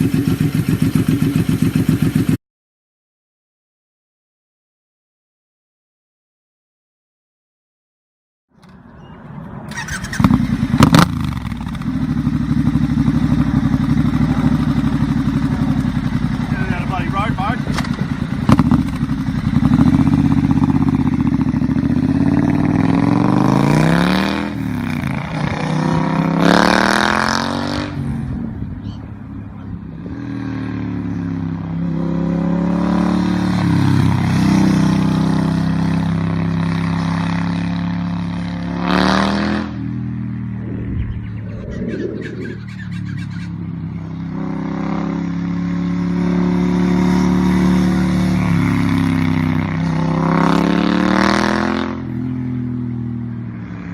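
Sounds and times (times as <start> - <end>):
motorcycle engine throttle blips: 8.6 - 23.2.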